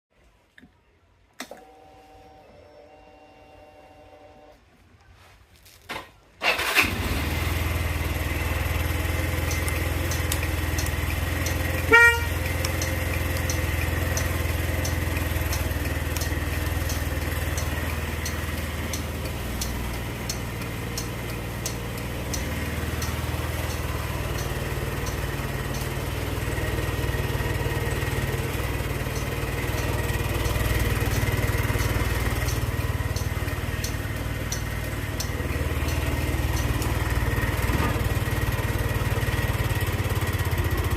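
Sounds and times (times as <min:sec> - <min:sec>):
scooter engine starting and idling: 0:01.4 - 0:04.6, 0:06.4 - 0:40.9
faint regular ticking: 0:08.1 - 0:37.6
scooter horn: 0:11.5 - 0:12.8.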